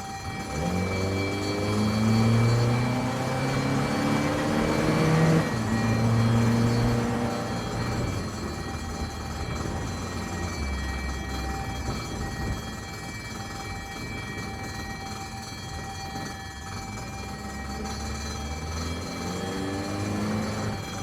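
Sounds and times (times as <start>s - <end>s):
engine running low rumble: 0.7s - 12.6s.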